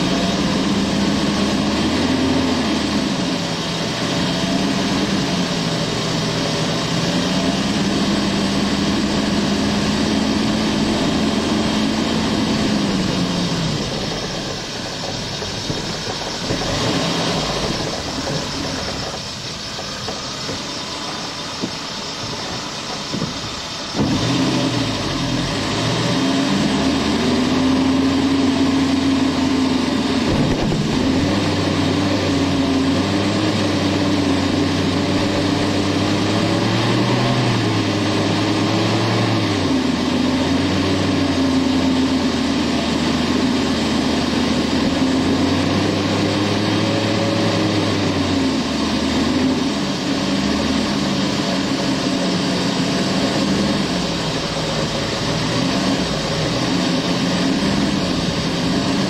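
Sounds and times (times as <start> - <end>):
car engine revving under load: 0.0 - 59.0.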